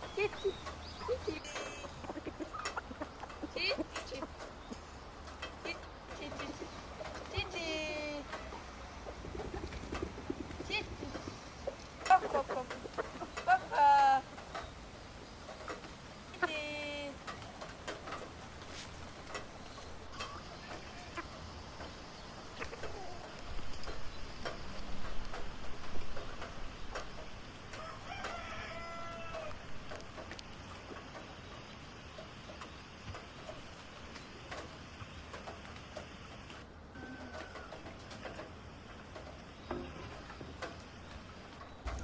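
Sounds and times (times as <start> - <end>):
rooster crowing: 27.7 - 29.7, 36.9 - 37.9.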